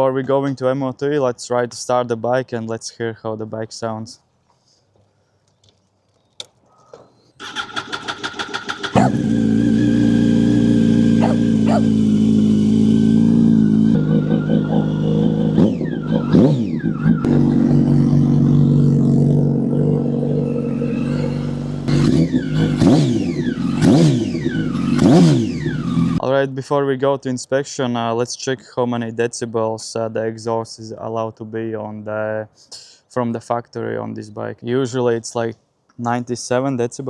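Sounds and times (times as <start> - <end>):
motorcycle starter cranking: 7.4 - 9.8
loud motorcycle engine revving: 7.5 - 26.2.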